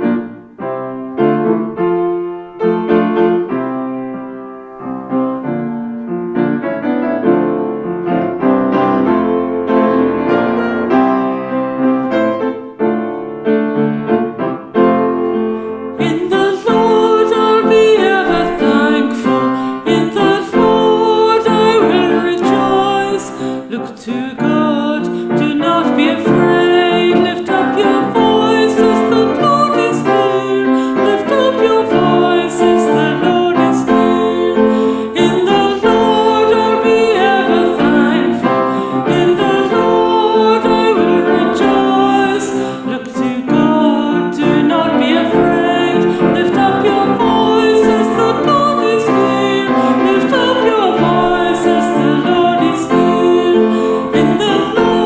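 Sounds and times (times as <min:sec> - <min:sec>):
piano accompaniment: 0:00.0 - 0:55.0
chant singing: 0:16.0 - 0:55.0.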